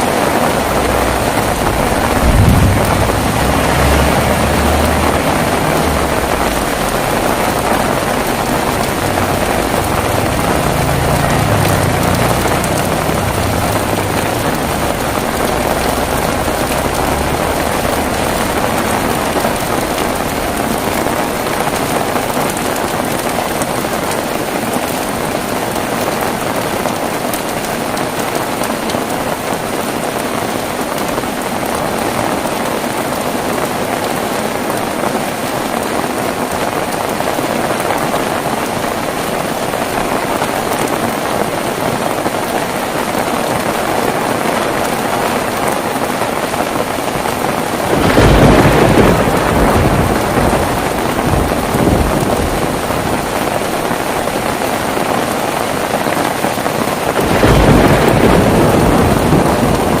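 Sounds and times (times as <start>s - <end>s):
thunder claps: 0.0s - 28.9s, 39.8s - 55.8s, 57.0s - 60.0s
heavy rain: 0.0s - 60.0s.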